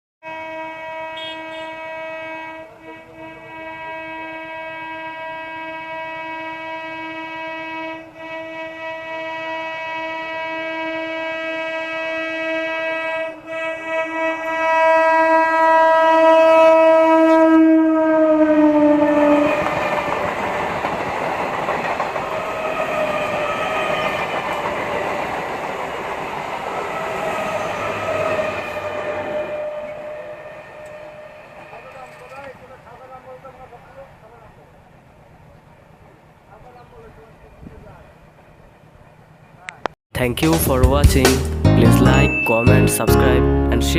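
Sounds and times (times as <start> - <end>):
train horn long blast: 0.2 - 19.9, 26.9 - 32.1
train coaches rushing and clattering: 19.1 - 39.7.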